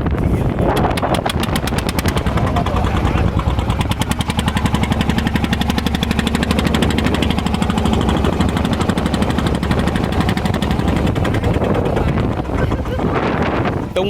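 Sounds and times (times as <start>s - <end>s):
boat engine chugging: 0.0s - 14.0s.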